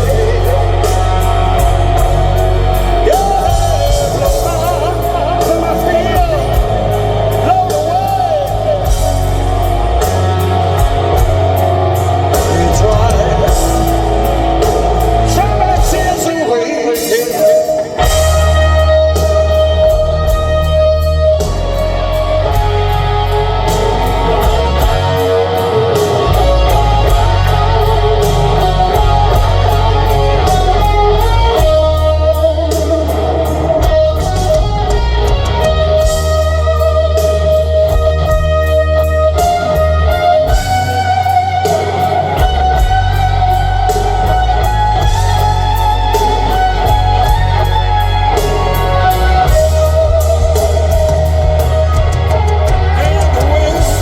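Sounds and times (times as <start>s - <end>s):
bass guitar: 0.0s - 54.0s
drums with cymbal strokes: 0.0s - 54.0s
electric guitar lead notes: 0.0s - 54.0s.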